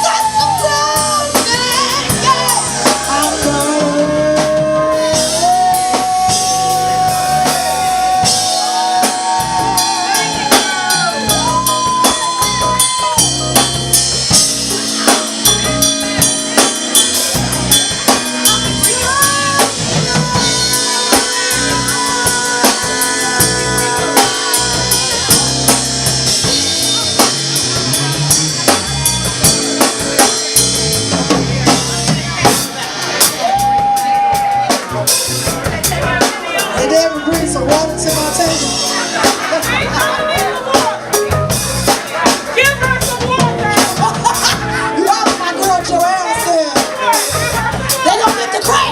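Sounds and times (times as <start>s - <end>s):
sliding melody notes: 0.0s - 33.2s
bass: 0.0s - 48.9s
drum kit beat: 0.0s - 48.9s.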